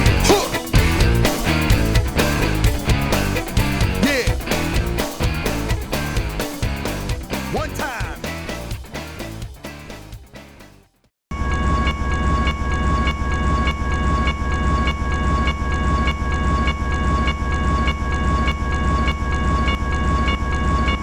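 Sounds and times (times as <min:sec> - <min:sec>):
song: 0:00.0 - 0:10.7.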